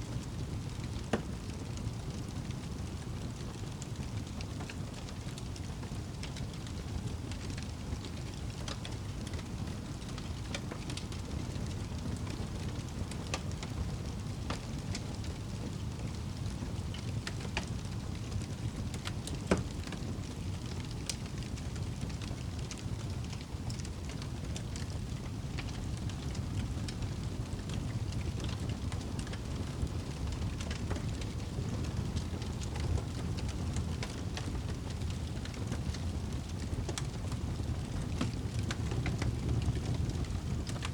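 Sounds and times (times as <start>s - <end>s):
campfire crackling and popping: 0.1s - 40.9s.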